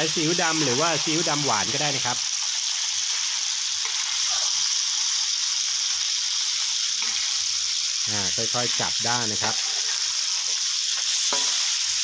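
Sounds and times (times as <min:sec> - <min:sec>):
chicken sizzling in wok: 0:00.0 - 0:12.0.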